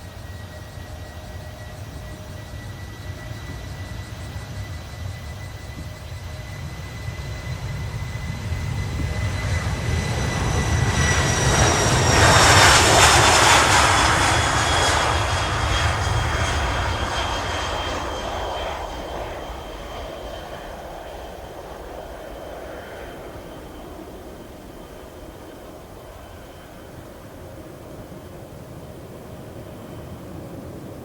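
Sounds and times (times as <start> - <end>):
jet engines passing by: 0.0 - 31.0.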